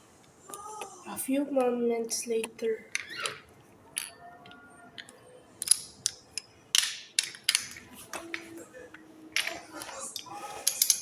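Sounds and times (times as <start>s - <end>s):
toy trains clicking and clacking: 9.4s - 11.0s.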